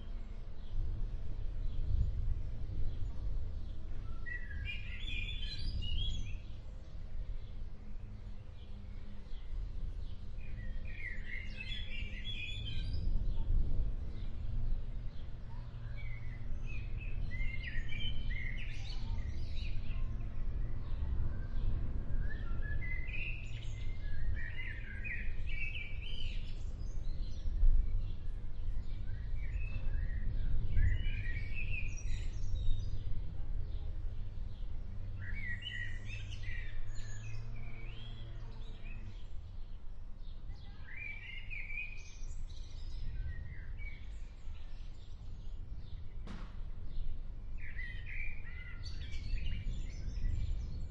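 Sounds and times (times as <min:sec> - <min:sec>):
steady low rumble: 0:00.0 - 0:40.5, 0:42.0 - 0:50.9
songbirds singing: 0:00.0 - 0:50.9.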